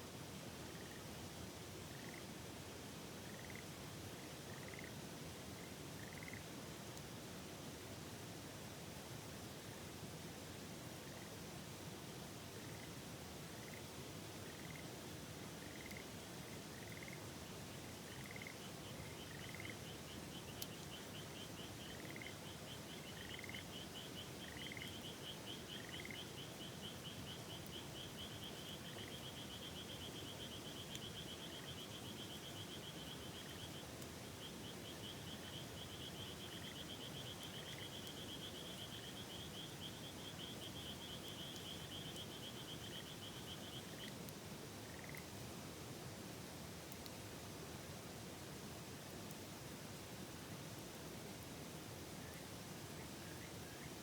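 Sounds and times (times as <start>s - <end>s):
frog chirps: 1.9s - 2.2s, 3.2s - 3.6s, 4.5s - 4.9s, 6.0s - 6.4s, 13.6s - 13.8s, 14.5s - 14.8s, 15.6s - 16.0s, 16.7s - 17.2s, 18.1s - 33.7s, 44.9s - 45.2s.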